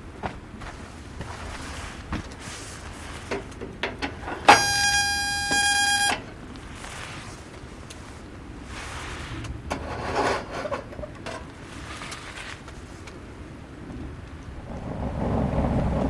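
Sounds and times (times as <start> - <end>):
electronic beep tone: 4.5 - 6.2.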